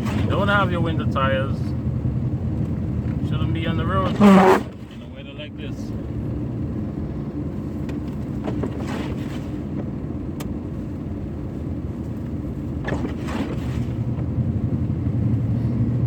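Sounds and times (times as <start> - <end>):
truck engine and road rumble: 0.0 - 16.0.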